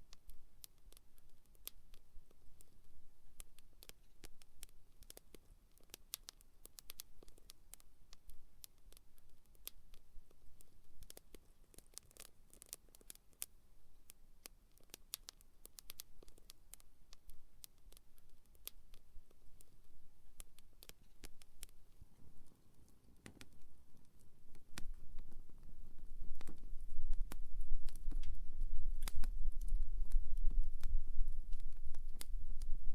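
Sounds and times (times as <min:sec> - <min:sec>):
wood fire crackling and popping: 0:14.7 - 0:32.9.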